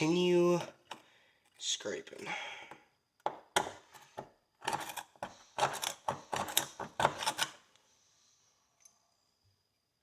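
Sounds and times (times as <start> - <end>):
pick scraping horseshoe: 3.9 - 7.6.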